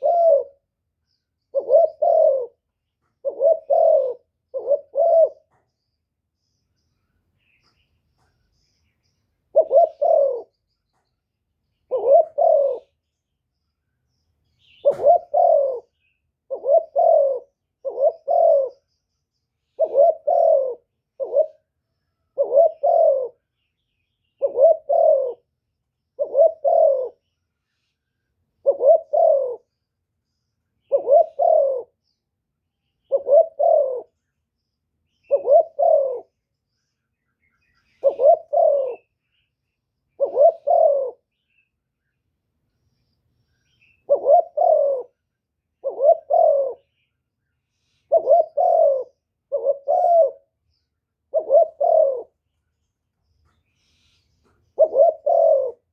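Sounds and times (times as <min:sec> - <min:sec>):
dove cooing: 0:00.0 - 0:00.7, 0:01.5 - 0:05.7, 0:09.5 - 0:10.7, 0:11.8 - 0:13.0, 0:14.6 - 0:19.0, 0:19.6 - 0:23.5, 0:24.3 - 0:27.3, 0:28.6 - 0:29.8, 0:30.8 - 0:32.0, 0:33.0 - 0:34.2, 0:35.2 - 0:36.4, 0:37.6 - 0:39.2, 0:40.1 - 0:41.3, 0:43.7 - 0:47.1, 0:47.9 - 0:52.4, 0:53.4 - 0:55.9.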